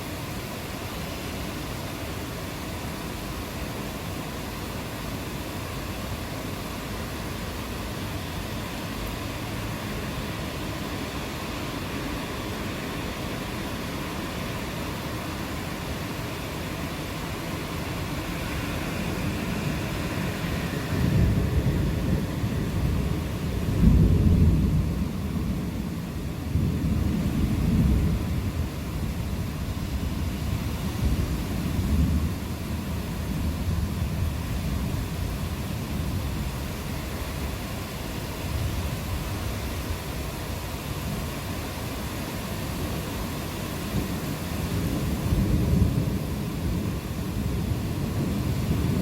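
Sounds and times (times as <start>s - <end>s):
steady rain: 0.0s - 49.0s
low rolling thunder: 17.4s - 37.6s, 43.3s - 49.0s.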